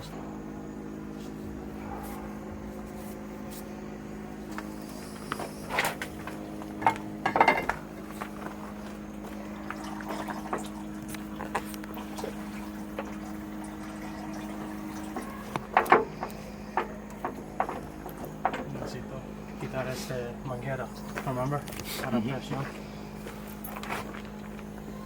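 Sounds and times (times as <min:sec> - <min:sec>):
machine humming: 0:00.0 - 0:25.0
metal clinks and knocks: 0:06.8 - 0:07.8.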